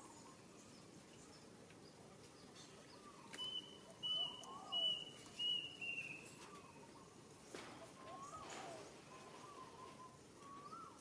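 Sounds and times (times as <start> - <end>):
faint lower bird calls: 2.6 - 11.0.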